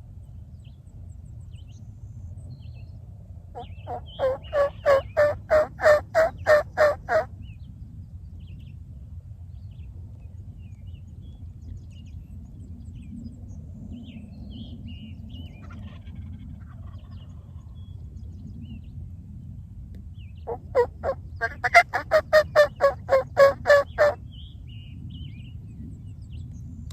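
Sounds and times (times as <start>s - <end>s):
raspy turkey yelps: 3.6s - 7.3s, 20.5s - 24.2s.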